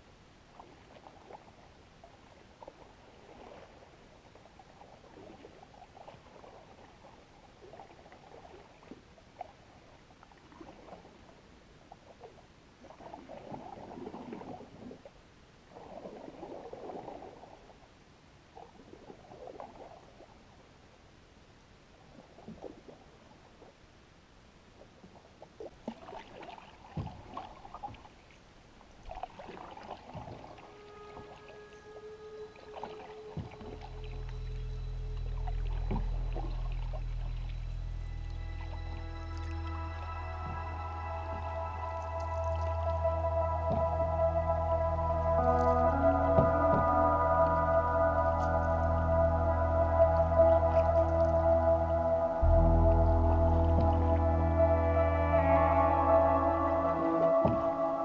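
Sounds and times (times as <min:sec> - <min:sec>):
paddle swishing through water: 0:00.5 - 0:17.9, 0:24.8 - 0:49.0.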